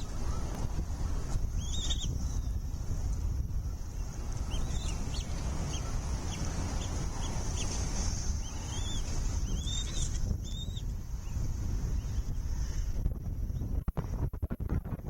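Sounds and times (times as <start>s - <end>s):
eagle calling: 0.0s - 2.7s, 3.7s - 10.9s
wind rumble on microphone: 0.0s - 15.0s.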